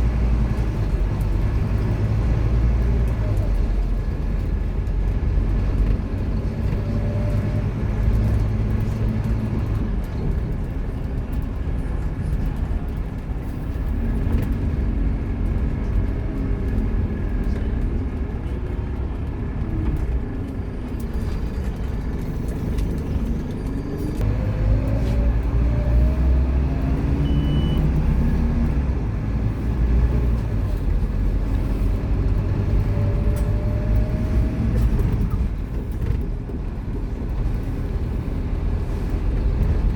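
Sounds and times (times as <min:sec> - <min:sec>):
diesel bus engine accelerating: 0:00.0 - 0:39.9.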